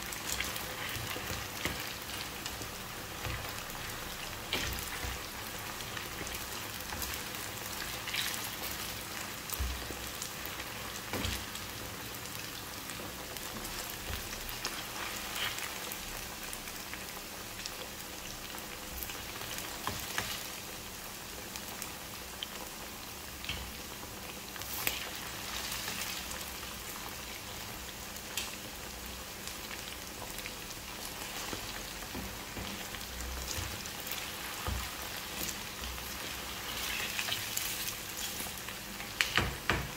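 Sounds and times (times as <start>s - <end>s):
spatula stirring in pan: 0.0s - 11.7s, 30.9s - 39.4s
chicken sizzling in hot oil: 0.0s - 39.9s.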